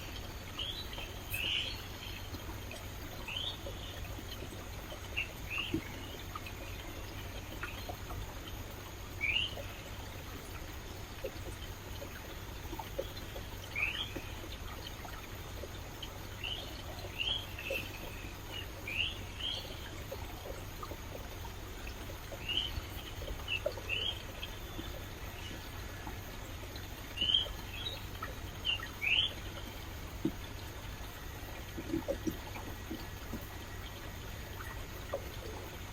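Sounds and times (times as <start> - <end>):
stream water running: 0.0 - 35.9
bird chirping: 0.6 - 2.4, 27.2 - 29.6.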